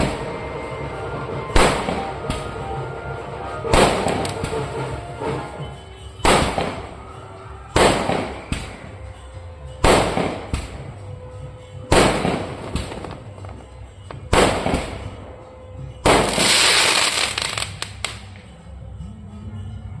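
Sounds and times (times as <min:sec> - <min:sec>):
firecrackers banging: 0:00.0 - 0:09.0, 0:09.8 - 0:11.0, 0:11.9 - 0:15.2, 0:16.0 - 0:18.4.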